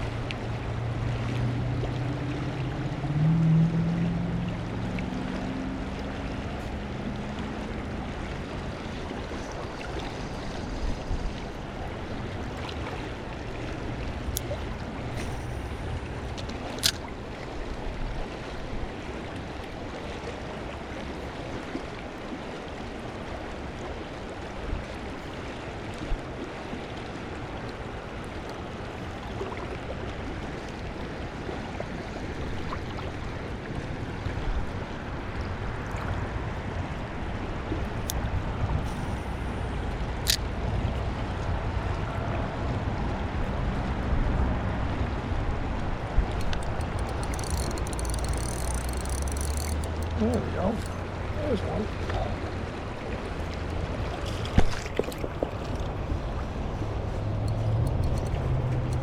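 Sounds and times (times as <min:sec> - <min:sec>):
stream water flowing: 0:00.0 - 0:59.0.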